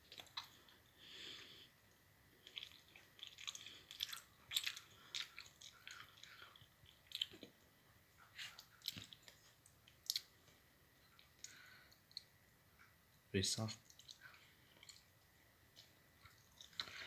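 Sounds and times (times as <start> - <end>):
person chewing soft cheese: 0.0 - 13.2, 13.8 - 17.0
mouth clicks and smacks: 8.4 - 10.4, 13.7 - 17.0.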